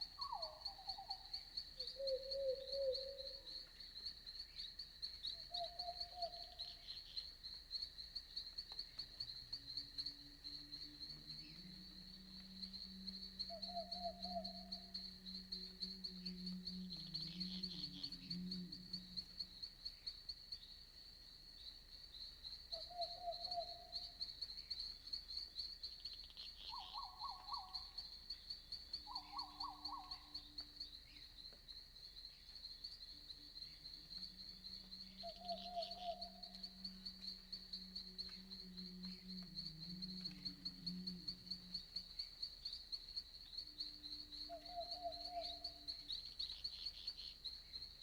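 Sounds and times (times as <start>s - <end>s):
night animal trilled calls: 0.0s - 3.5s, 10.0s - 19.7s, 22.7s - 24.2s, 26.5s - 28.0s, 29.0s - 30.5s, 33.4s - 42.8s, 43.6s - 47.4s
crickets chirping: 0.0s - 48.0s.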